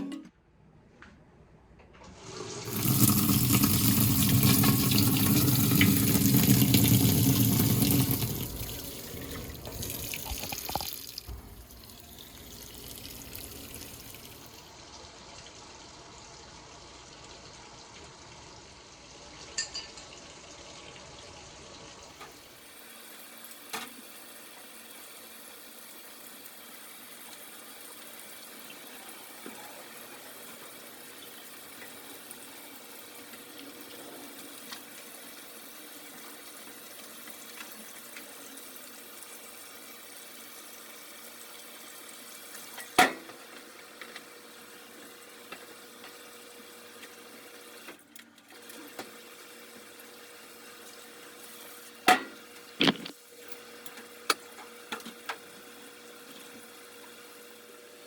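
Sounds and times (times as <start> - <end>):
water running hard: 2.6 - 14.6.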